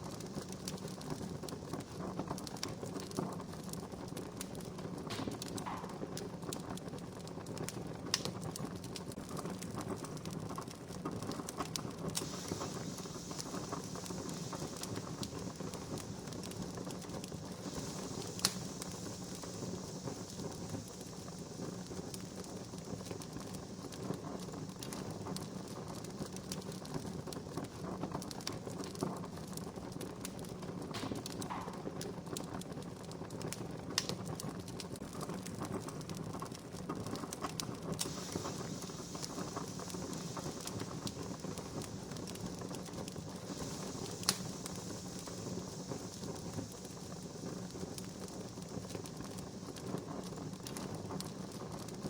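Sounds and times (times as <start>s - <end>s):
sharp pops of fire: 0.0s - 52.0s
soft hiss: 0.0s - 52.0s
wood fire crackling: 0.0s - 52.0s.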